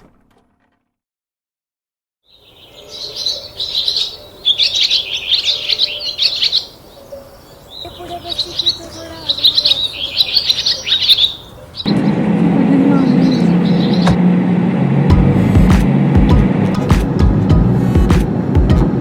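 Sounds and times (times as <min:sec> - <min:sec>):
small birds chirping: 0:02.3 - 0:12.2, 0:12.8 - 0:14.2.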